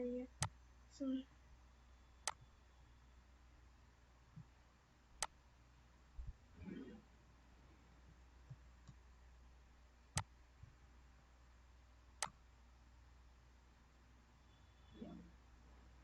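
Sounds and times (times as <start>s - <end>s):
faint hum: 0.0s - 16.0s
sharp clicks: 2.2s - 2.5s.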